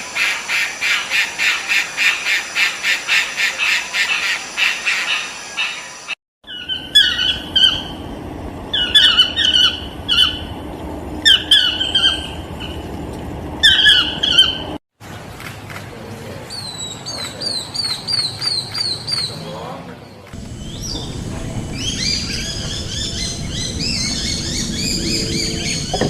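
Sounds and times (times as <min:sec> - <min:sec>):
bird squawking notes: 0:06.5 - 0:12.9, 0:13.6 - 0:14.8
high even bird notes: 0:06.5 - 0:14.8, 0:20.4 - 0:26.0.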